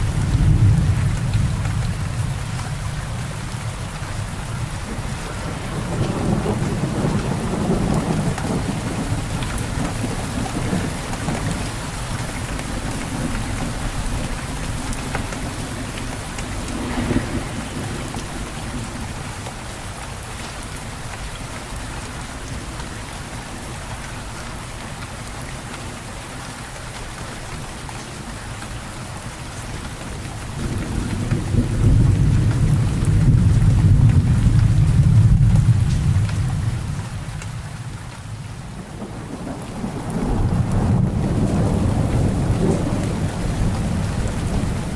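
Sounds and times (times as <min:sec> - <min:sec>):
rolling thunder: 0:00.0 - 0:19.5, 0:30.6 - 0:44.9
rain falling: 0:00.0 - 0:44.9.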